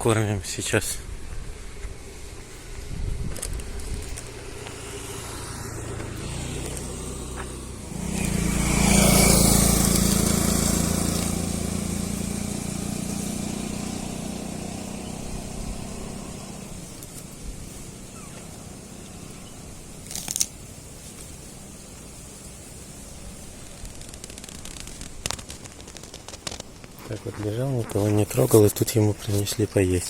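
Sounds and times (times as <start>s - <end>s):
vehicle passing by: 0.9s - 20.2s.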